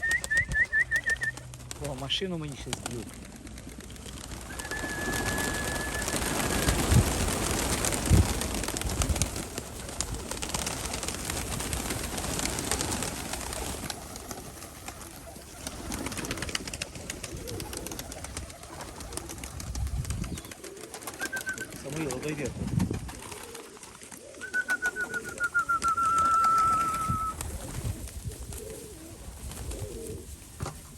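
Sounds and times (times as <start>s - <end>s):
pigeons cooing: 3.4s - 6.9s, 12.3s - 30.3s
high whistle-like tone: 4.6s - 6.2s.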